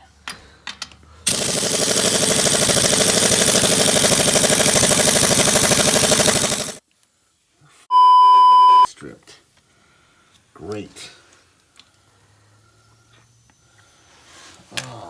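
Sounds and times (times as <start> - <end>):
pneumatic impact wrench hammering: 1.3 - 6.8
loud steady beep: 7.9 - 8.9.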